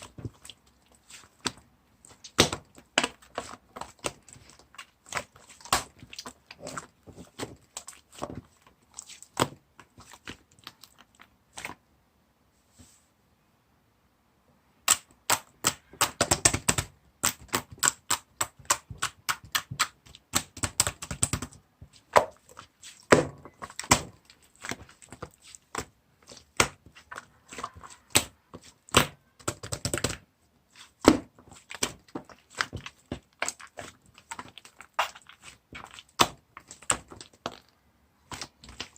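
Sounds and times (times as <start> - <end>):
slime being squished by hand: 0.0 - 11.8, 14.8 - 38.9.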